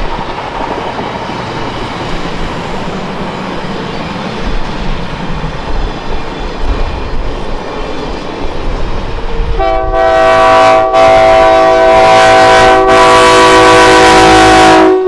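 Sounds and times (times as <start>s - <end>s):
low rumble of train: 0.0s - 15.0s
steam locomotive chime whistle: 9.6s - 15.0s.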